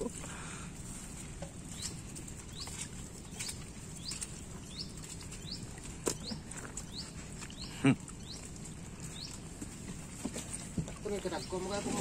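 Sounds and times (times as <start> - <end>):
outdoor background hiss: 0.0 - 12.0
bird chirping: 1.6 - 9.8.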